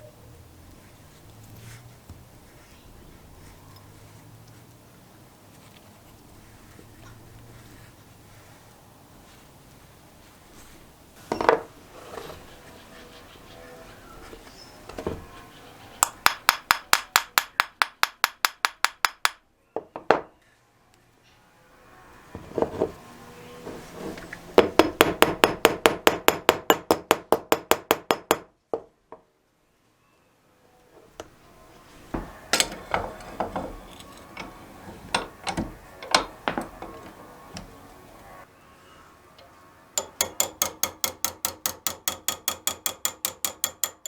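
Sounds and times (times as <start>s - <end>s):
knocks and clinks: 40.0s - 44.0s
rapid metallic clicks: 40.0s - 44.0s.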